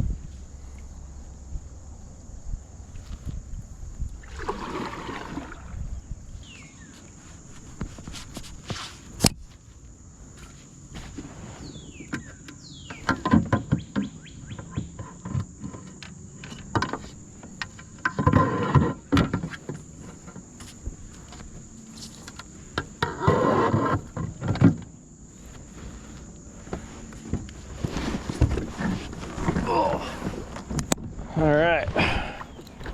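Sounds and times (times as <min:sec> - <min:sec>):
paddle knocking against kayak: 0:31.9 - 0:32.9.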